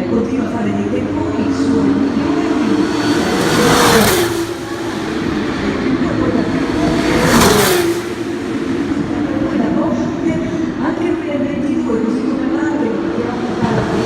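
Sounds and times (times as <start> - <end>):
distant race car engines: 0.0 - 14.0
race cars passing close by: 0.0 - 14.0.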